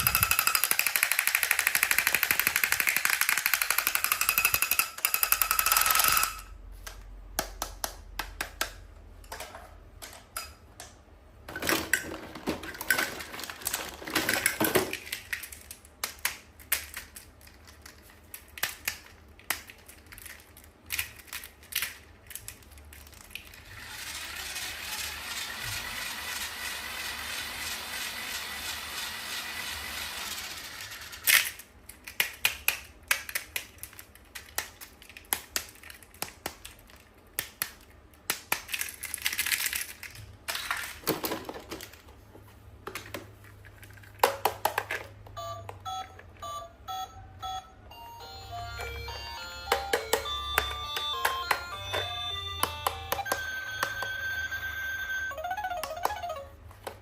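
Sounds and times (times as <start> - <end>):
toy clicks and taps: 0.0 - 6.5, 48.2 - 54.6, 55.2 - 57.0
plastic packaging crinkling: 12.1 - 16.0.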